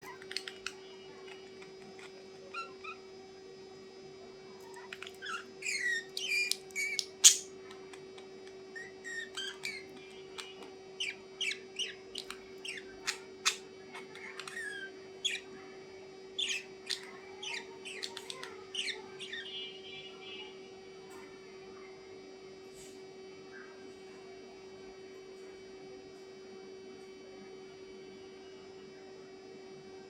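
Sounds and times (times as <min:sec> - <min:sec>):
bird chirps and squeaks: 0:00.0 - 0:03.0, 0:04.7 - 0:07.5, 0:08.7 - 0:15.5, 0:16.4 - 0:19.6.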